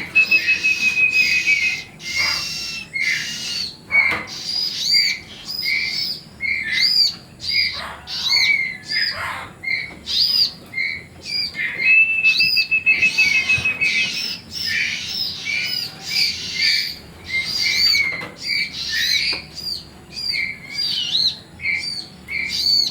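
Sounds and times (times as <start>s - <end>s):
bird chicks chirping: 0.0s - 22.9s.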